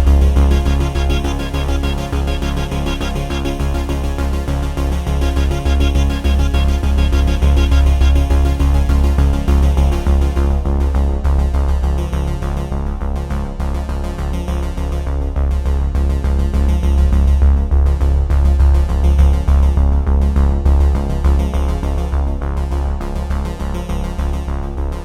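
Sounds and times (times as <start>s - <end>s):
electronic synthesizer music: 0.0s - 10.4s
pulsing deep bass: 0.0s - 25.0s.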